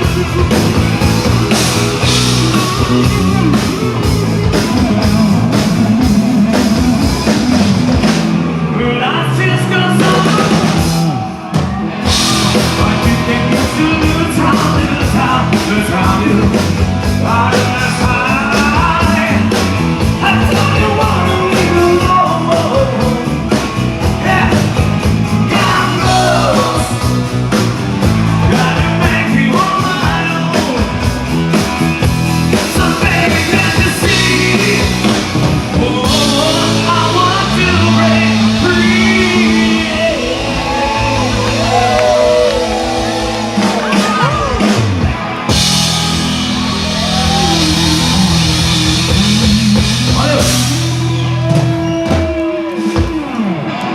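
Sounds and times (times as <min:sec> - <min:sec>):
drum kit: 0:00.0 - 0:53.9
electric guitar: 0:00.0 - 0:53.9
person singing: 0:08.7 - 0:31.2, 0:32.5 - 0:44.8.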